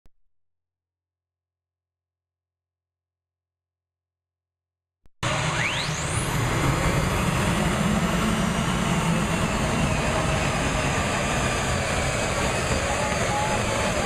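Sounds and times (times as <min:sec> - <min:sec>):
engine whine rising in pitch: 0:05.2 - 0:14.0
tractor engine low rumble: 0:06.1 - 0:14.0.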